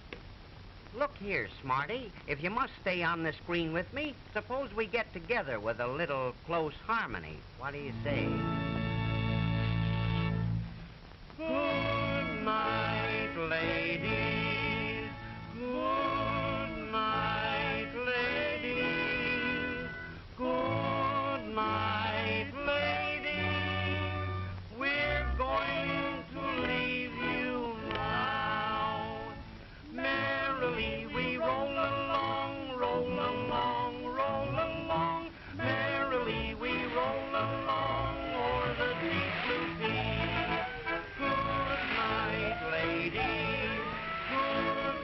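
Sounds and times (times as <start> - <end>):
musical accompaniment: 7.8 - 45.0
voices singing in harmony: 11.4 - 45.0.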